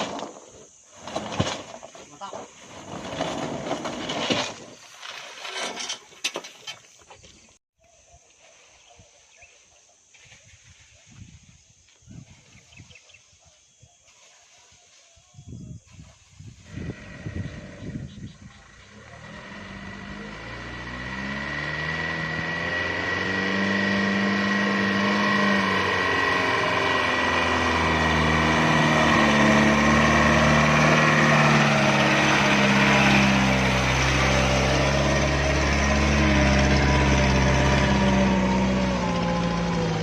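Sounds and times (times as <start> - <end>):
truck diesel engine revving: 16.6 - 40.0.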